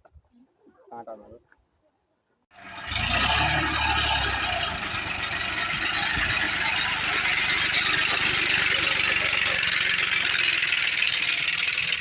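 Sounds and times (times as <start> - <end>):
tractor diesel engine running: 2.5 - 12.0.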